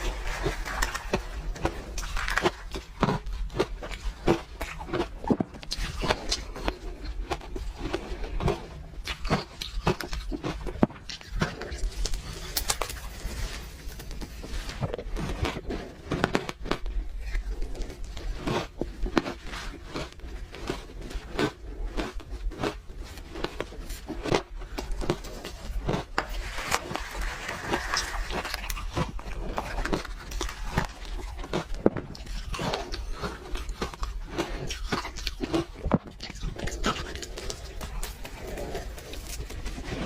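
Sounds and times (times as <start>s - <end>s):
ice crunching while chewed: 0.0s - 40.0s.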